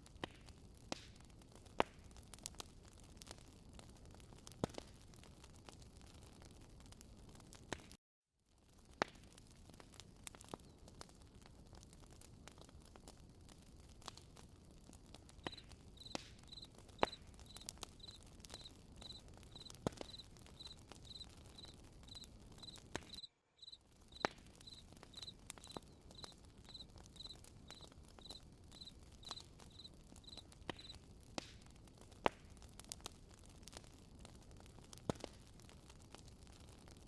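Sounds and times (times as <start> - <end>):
campfire crackling: 0.0 - 37.0
cricket chirping: 16.0 - 30.4.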